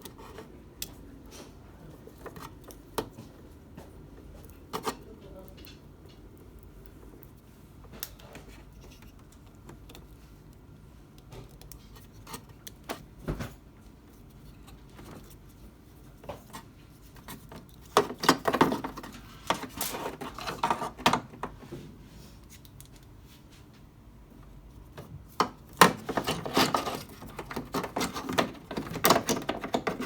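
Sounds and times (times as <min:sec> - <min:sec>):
plastic parts rattling: 0:17.9 - 0:21.6, 0:25.7 - 0:30.0
clicks and small knocks: 0:24.9 - 0:30.0.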